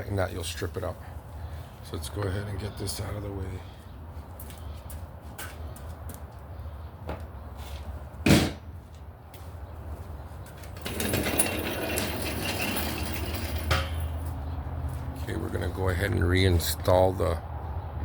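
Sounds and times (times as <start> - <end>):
tools clattering and scraping: 10.6 - 14.4.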